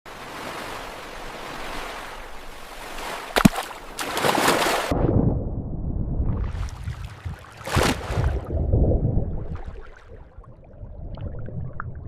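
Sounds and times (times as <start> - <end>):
sea waves washing: 0.1 - 5.0
splash in water: 1.6 - 4.9, 6.4 - 8.5
muffled underwater rumble: 8.2 - 12.0.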